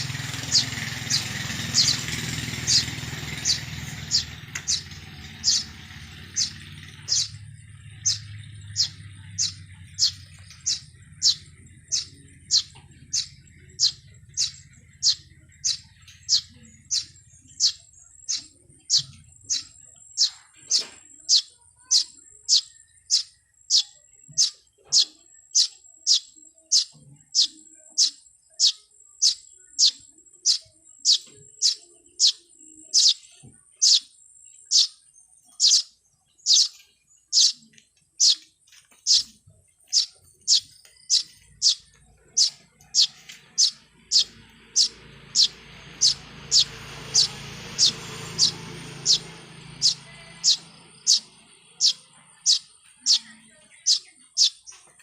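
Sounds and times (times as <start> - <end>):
low rumbling noise: 0.0 - 20.8, 39.1 - 53.2
bird chirping: 0.0 - 55.0.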